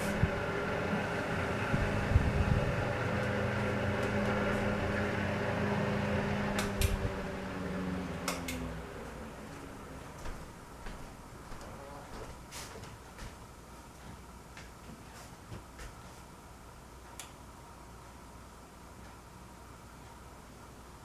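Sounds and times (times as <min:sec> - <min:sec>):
fan clicks: 0:00.0 - 0:10.3, 0:17.0 - 0:17.5
electric fan humming: 0:00.0 - 0:21.0.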